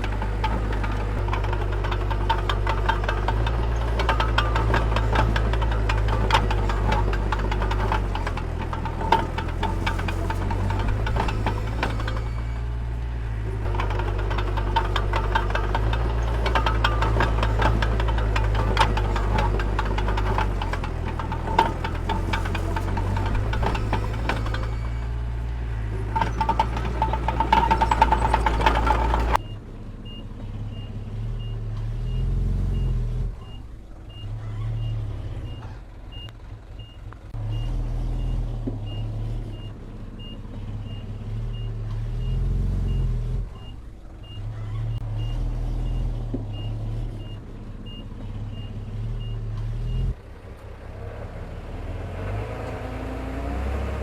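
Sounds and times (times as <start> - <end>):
diesel engine running with clatter: 0.0 - 54.0.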